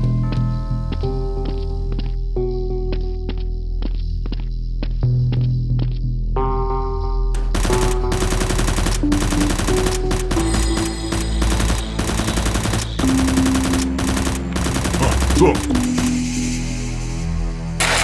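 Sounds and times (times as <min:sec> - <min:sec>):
background music with held notes: 0:00.0 - 0:17.8
automatic gunfire: 0:17.8 - 0:18.0.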